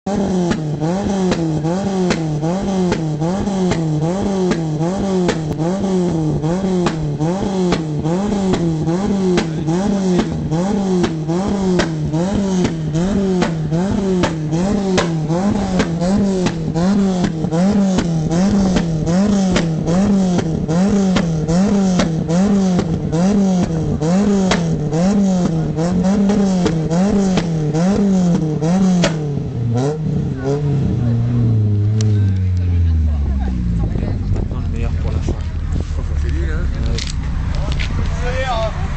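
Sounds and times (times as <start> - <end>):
car engine revving: 0.0 - 38.9
sharp clicks and crackles: 35.1 - 38.2.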